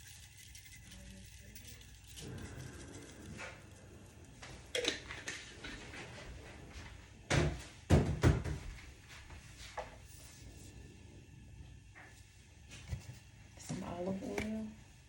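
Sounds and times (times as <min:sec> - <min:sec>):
kitchen containers knocking on counter: 0:07.3 - 0:08.7.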